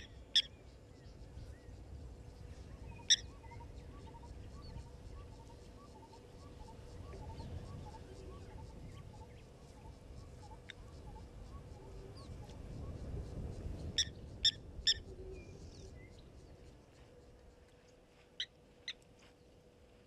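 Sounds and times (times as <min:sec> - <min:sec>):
sharp shorebird calls: 0:00.0 - 0:00.5, 0:02.9 - 0:06.8, 0:14.0 - 0:15.0
faint high peeping: 0:00.0 - 0:20.0
low steady rumble: 0:00.0 - 0:20.0.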